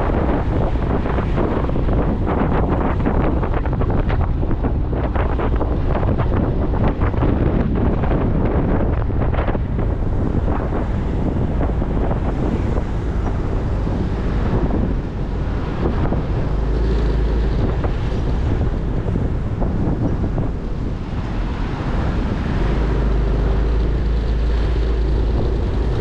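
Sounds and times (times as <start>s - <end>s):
road noise: 0.0s - 26.0s
wind buffeting microphone: 0.0s - 26.0s
motorcycle engine: 8.7s - 26.0s.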